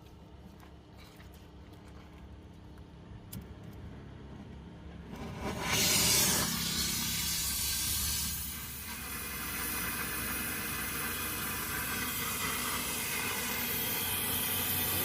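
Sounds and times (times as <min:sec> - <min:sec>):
low steady hum: 0:00.0 - 0:15.0
steady hiss: 0:05.6 - 0:15.0.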